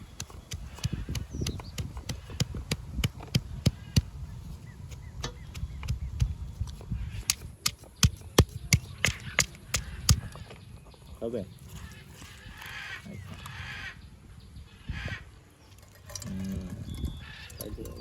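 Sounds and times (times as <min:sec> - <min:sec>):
knife chopping on cutting board: 0:07.2 - 0:10.2.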